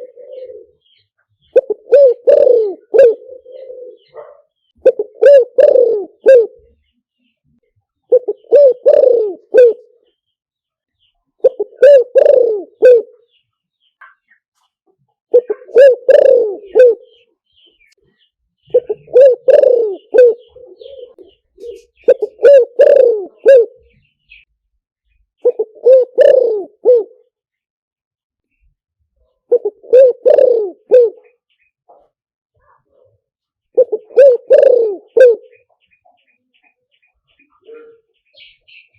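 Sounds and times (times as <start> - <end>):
dove cooing: 0.0 - 6.8, 8.1 - 10.1, 11.4 - 13.3, 15.3 - 17.3, 18.7 - 24.4, 25.4 - 27.3, 29.2 - 32.0, 33.7 - 35.8, 37.4 - 38.9.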